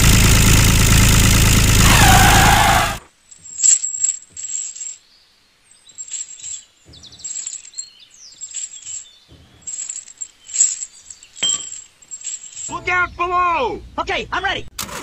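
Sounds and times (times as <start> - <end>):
metal chain clinking: 3.2 - 12.8.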